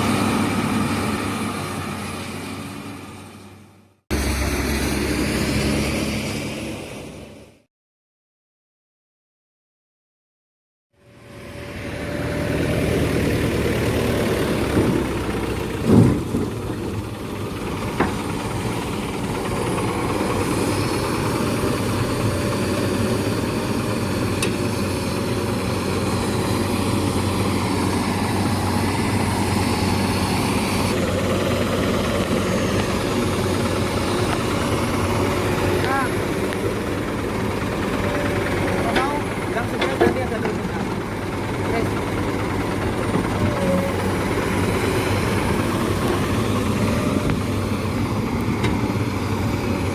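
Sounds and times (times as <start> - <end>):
heavy diesel engine running: 0.0 - 7.6, 11.0 - 49.9
loud thump: 15.8 - 16.6.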